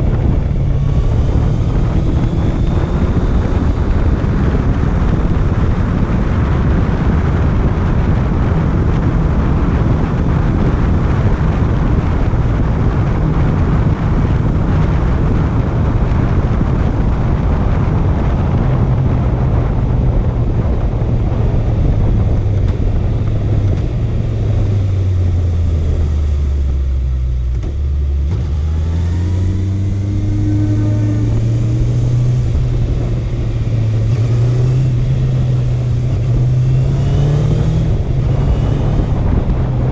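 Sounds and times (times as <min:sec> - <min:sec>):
motorcycle engine running: 0:00.0 - 0:39.9
wind rush: 0:00.0 - 0:39.9.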